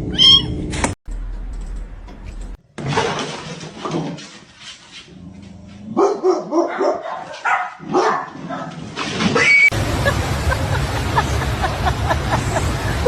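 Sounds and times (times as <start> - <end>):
dog barking: 6.0 - 8.8.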